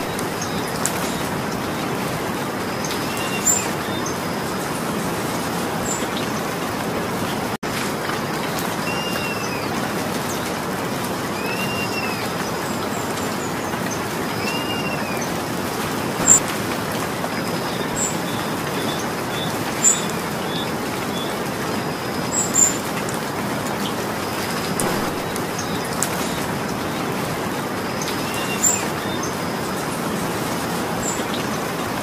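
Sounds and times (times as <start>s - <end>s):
steady rain: 0.0s - 32.0s
bird call: 8.9s - 9.7s, 11.4s - 12.4s, 14.4s - 15.3s, 16.2s - 16.4s, 24.8s - 26.5s.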